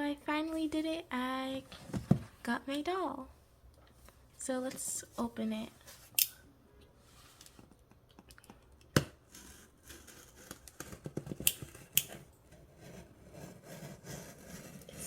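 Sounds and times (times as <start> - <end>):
small clicks and scrapes: 9.3 - 12.3.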